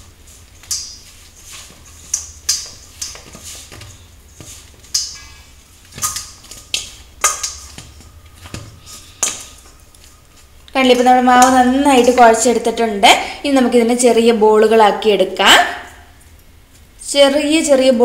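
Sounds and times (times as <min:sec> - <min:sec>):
hand kneading dough: 0:00.0 - 0:12.9.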